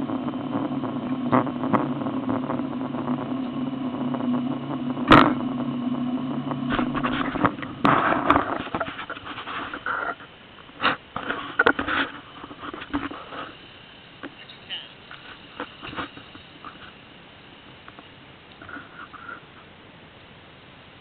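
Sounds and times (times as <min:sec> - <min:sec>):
engine running at low revs: 0:00.0 - 0:14.4
scrapes and rustles: 0:06.8 - 0:13.6.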